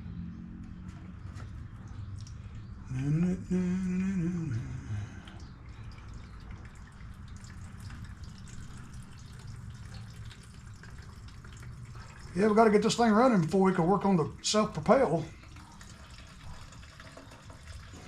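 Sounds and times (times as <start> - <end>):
liquid dripping and trickling: 0.8 - 2.9, 3.9 - 18.0
man humming: 2.8 - 5.3.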